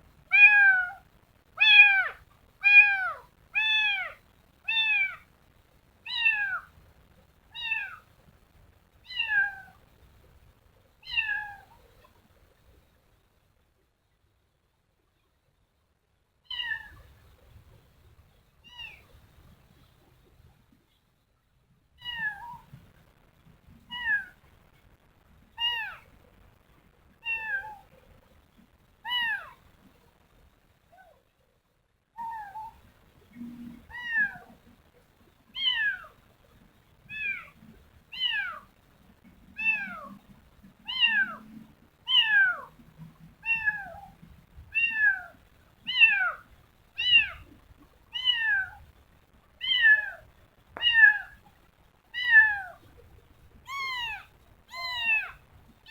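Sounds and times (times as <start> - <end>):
kitten meowing: 0.3 - 1.0, 1.6 - 5.2, 6.1 - 6.7, 7.6 - 8.0, 9.1 - 9.8, 11.0 - 11.7, 16.5 - 17.1, 18.7 - 19.1, 22.0 - 22.7, 23.9 - 24.4, 25.6 - 26.1, 27.2 - 27.9, 29.1 - 29.6, 32.2 - 32.8, 33.9 - 34.6, 35.6 - 36.2, 37.1 - 38.6, 39.6 - 40.1, 40.9 - 41.4, 42.1 - 42.7, 43.4 - 44.1, 44.7 - 46.4, 47.0 - 47.5, 48.2 - 48.8, 49.6 - 51.4, 52.2 - 52.8, 53.7 - 55.9.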